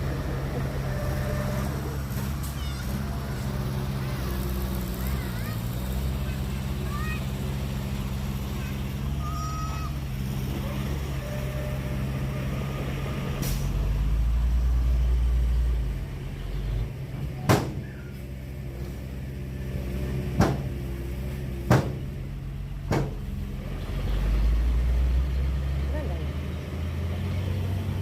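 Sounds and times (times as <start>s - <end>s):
heavy diesel engine running: 0.0s - 28.0s
sharp knocks: 20.4s - 20.7s, 21.7s - 22.1s, 22.9s - 23.2s.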